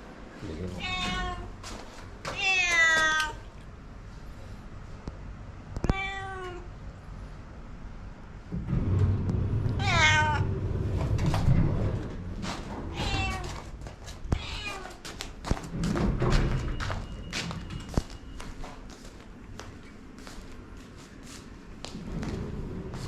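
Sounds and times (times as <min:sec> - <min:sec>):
cat meowing: 0:00.8 - 0:01.6, 0:02.3 - 0:03.4, 0:05.8 - 0:06.7, 0:09.8 - 0:10.5, 0:12.9 - 0:13.7, 0:14.3 - 0:15.0
low rumbling noise: 0:06.7 - 0:14.7, 0:21.5 - 0:23.0.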